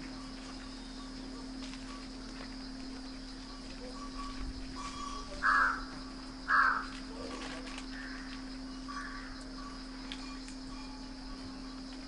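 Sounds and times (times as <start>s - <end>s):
harsh bird calls: 2.8s - 11.8s.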